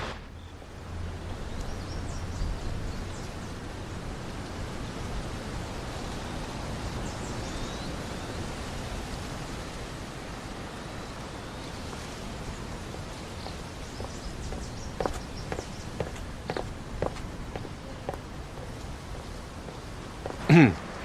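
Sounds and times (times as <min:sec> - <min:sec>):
outdoor ambient noise: 0:00.0 - 0:21.0
footsteps: 0:12.8 - 0:20.6.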